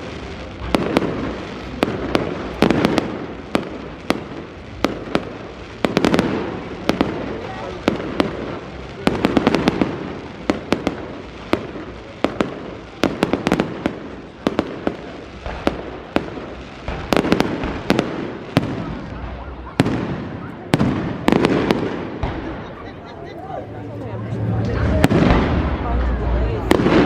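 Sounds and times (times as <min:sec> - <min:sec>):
fireworks bangs and cracks: 0:00.0 - 0:27.0
low rumbling booms: 0:24.2 - 0:27.0.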